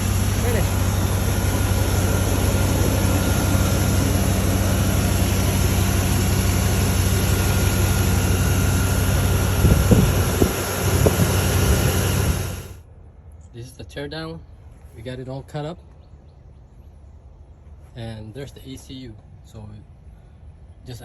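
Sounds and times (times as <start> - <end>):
engine droning: 0.0 - 12.8.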